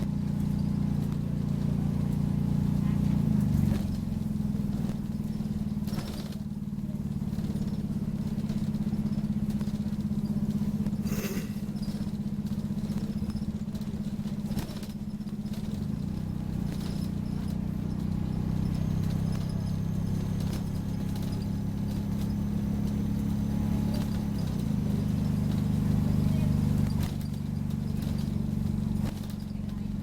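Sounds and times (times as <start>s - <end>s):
bus diesel engine running: 0.0s - 30.0s
brief clatters: 10.8s - 19.6s.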